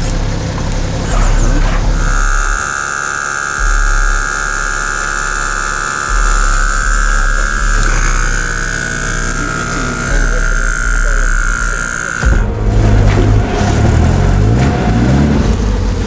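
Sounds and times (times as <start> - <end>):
low rumble: 0.0 - 2.8, 3.4 - 16.0
tow truck machinery whining: 0.0 - 16.0.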